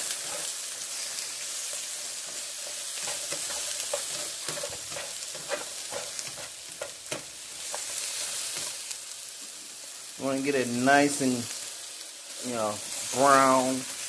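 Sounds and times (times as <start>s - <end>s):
stirring scrapes against pan: 0.0s - 1.1s, 2.2s - 8.8s
peppers sizzling in oil: 0.0s - 14.0s.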